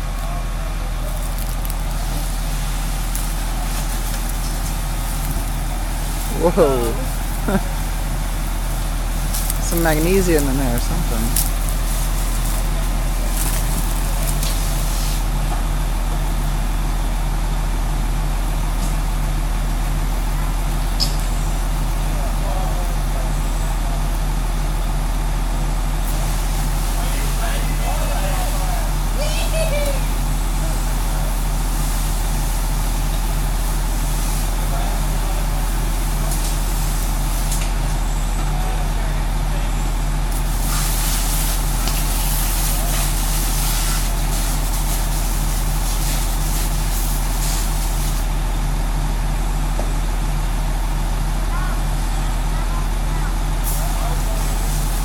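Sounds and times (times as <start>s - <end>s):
fire engine running: 0.0s - 55.0s
steady hiss: 1.0s - 15.6s, 26.0s - 38.1s, 39.0s - 48.4s, 53.6s - 55.0s.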